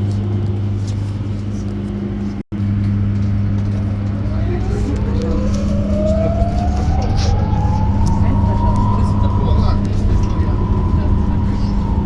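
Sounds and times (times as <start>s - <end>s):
electric motor whine rising: 3.9s - 12.0s.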